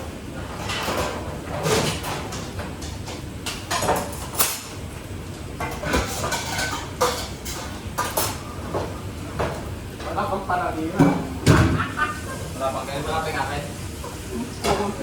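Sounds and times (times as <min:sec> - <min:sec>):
pots and dishes clattering: 0:00.4 - 0:04.8, 0:05.5 - 0:10.3, 0:10.9 - 0:12.5, 0:14.0 - 0:15.0.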